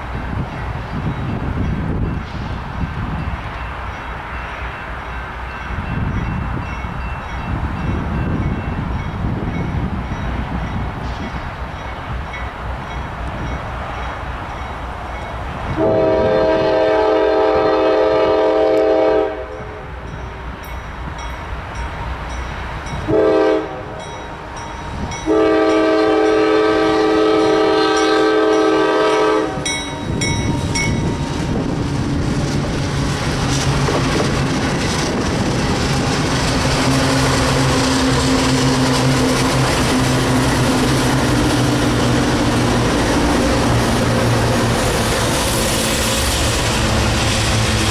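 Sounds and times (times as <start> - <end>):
train rumbling past: 0.0 - 47.9
train air horn blasts: 15.8 - 20.0, 23.1 - 24.1, 25.2 - 31.1.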